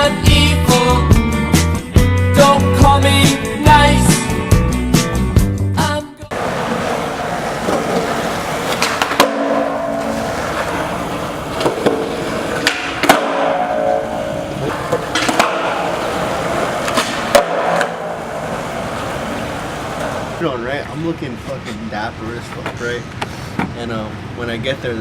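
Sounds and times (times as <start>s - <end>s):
skateboard deck clacking on ground: 6.3s - 20.4s
skateboard wheels rolling on concrete: 6.3s - 20.9s.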